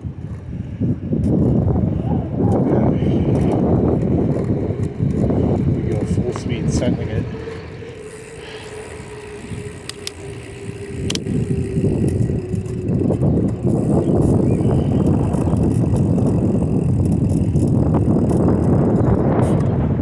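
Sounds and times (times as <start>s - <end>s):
wind rushing over microphone: 0.0s - 20.0s
faint steady whine: 1.7s - 18.0s
light clicks: 9.6s - 10.3s.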